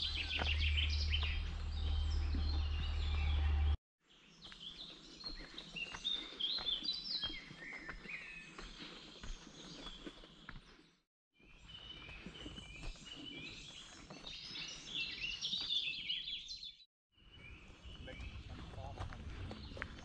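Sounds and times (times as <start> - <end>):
low rumble: 0.0 - 3.8
songbirds singing and chirping: 0.0 - 20.0.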